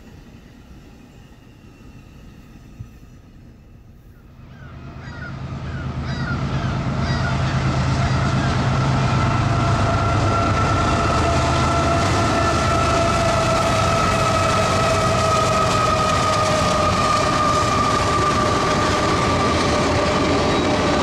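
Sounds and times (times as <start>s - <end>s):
diesel locomotive engine drone: 0.0s - 21.0s
high wheel squeal tone: 0.2s - 4.0s, 5.0s - 21.0s
bird calls: 4.0s - 8.6s.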